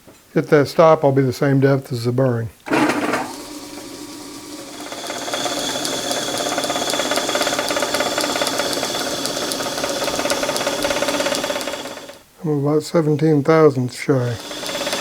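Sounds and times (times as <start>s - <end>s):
high whine of cutting tool: 2.7s - 12.2s, 14.0s - 15.0s
metal lathe humming: 2.7s - 12.2s, 13.6s - 15.0s
light regular ticking: 3.3s - 12.2s, 14.1s - 15.0s.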